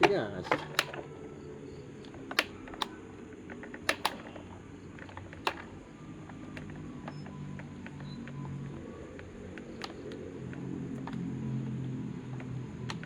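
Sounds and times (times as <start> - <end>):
tool clicking and tapping: 0.0 - 5.8, 9.2 - 11.2.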